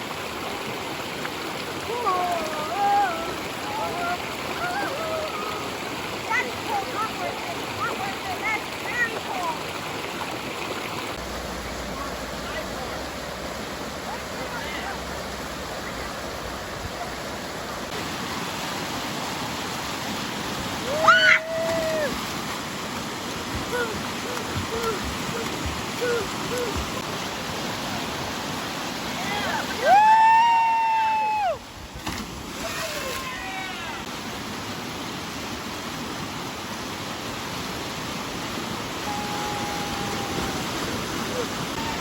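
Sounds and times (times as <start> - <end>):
stream water rushing over rock: 0.0 - 42.0
person yelling: 23.7 - 27.0.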